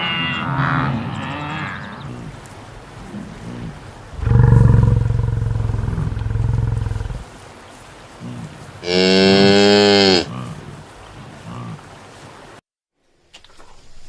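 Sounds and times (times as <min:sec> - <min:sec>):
cattle mooing: 0:00.0 - 0:07.2, 0:08.2 - 0:10.8.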